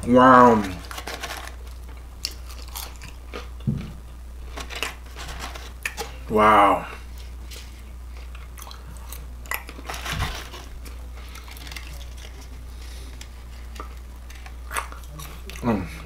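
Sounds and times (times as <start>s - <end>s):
person chewing crunchy food: 0.8s - 3.7s, 6.8s - 15.8s.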